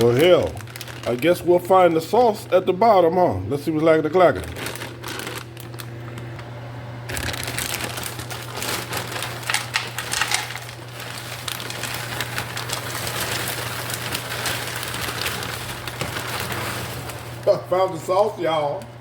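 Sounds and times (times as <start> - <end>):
plastic bag crinkling: 0.0 - 2.6, 3.6 - 18.8
frozen pieces rattling: 4.4 - 5.8, 7.1 - 17.4.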